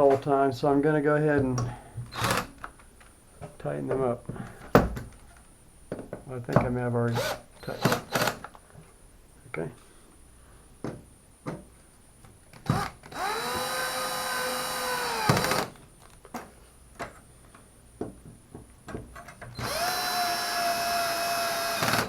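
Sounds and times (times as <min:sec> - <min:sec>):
drill-driver spinning: 0:12.8 - 0:15.7, 0:19.6 - 0:22.0.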